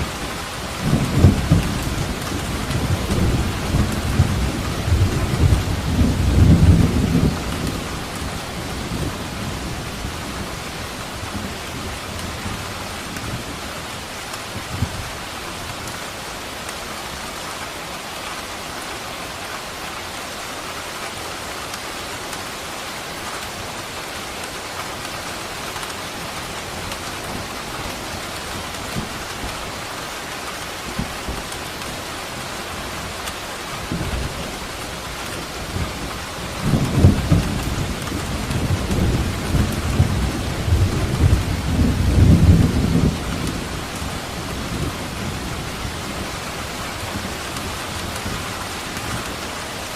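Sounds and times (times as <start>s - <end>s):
thunder rumbling: 0.0s - 10.6s, 33.8s - 49.2s
heavy rain falling: 0.0s - 49.9s.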